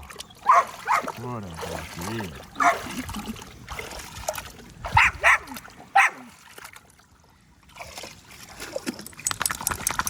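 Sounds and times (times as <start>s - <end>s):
dog barking: 0.4s - 1.1s, 2.6s - 2.9s, 4.9s - 6.3s.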